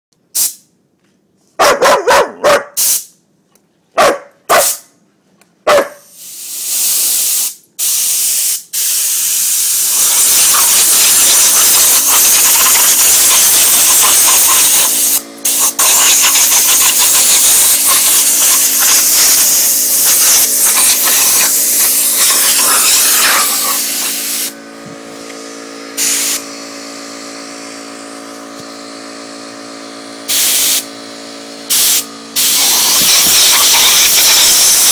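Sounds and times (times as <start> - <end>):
compressed air hissing: 0.3 - 0.7, 2.8 - 3.2, 6.0 - 24.8, 25.9 - 26.6, 30.2 - 31.0, 31.6 - 34.9
dog barking: 1.6 - 2.8, 3.9 - 4.9, 5.6 - 6.1
compressor motor humming: 9.5 - 34.9.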